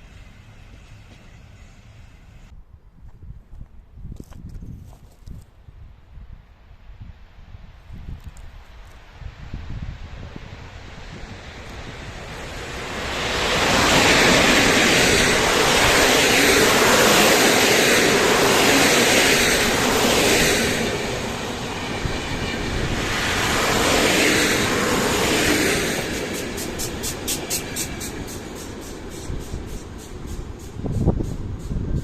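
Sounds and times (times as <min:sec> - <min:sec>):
train wheels rumbling on rails: 0:00.0 - 0:02.5, 0:10.2 - 0:32.0.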